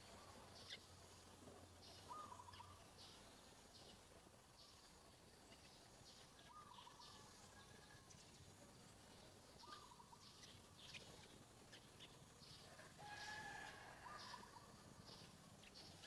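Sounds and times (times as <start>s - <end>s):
short warbled bird calls: 0.0s - 4.8s, 5.5s - 7.9s, 9.6s - 12.6s, 14.0s - 16.0s
distant bird chirps: 0.0s - 16.0s.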